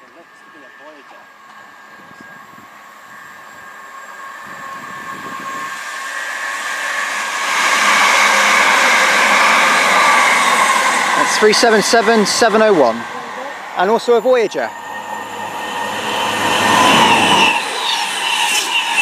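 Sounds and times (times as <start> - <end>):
train passing at speed: 0.0 - 19.0
train whine: 0.0 - 19.0.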